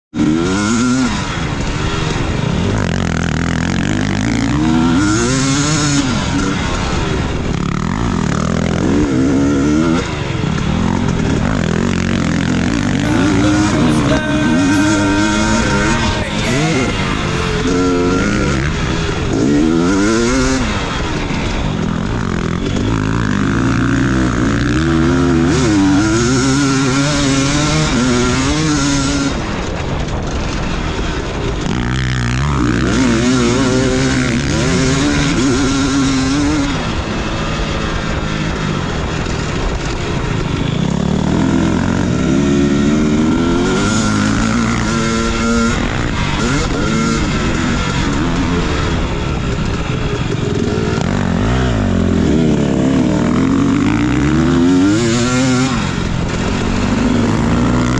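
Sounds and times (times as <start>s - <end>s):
dirt bike engine revving: 50.4s - 57.9s.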